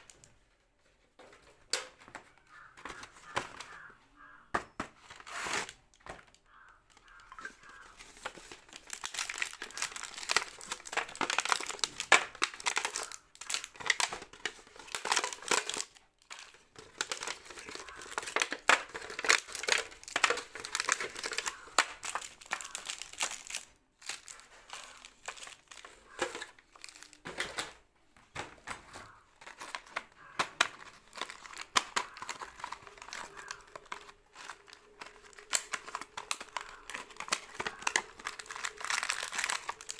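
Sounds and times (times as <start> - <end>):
plastic wrappers crinkling: 0.0 - 4.4, 5.0 - 39.9.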